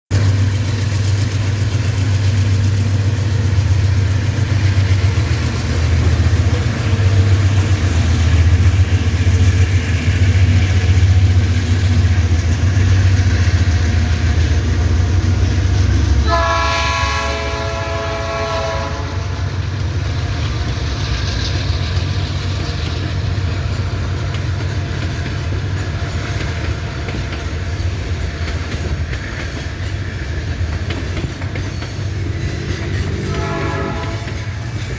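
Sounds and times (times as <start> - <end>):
diesel locomotive rumble: 0.1 - 34.9
train wagons rolling on rails: 0.1 - 34.9
train horn blast: 16.2 - 19.6, 32.6 - 34.7.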